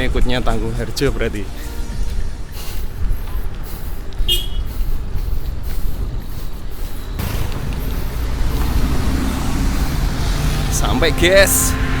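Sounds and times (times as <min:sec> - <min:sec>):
wind rumbling on microphone: 0:01.8 - 0:10.7
passing motor vehicle hiss: 0:07.2 - 0:12.0.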